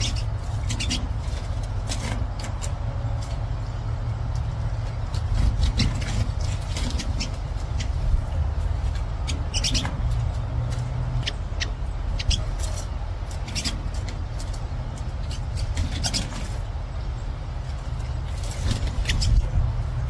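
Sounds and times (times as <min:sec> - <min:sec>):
steady low rumble: 0:00.0 - 0:20.0
high bird chirps: 0:09.3 - 0:10.0, 0:11.2 - 0:12.7.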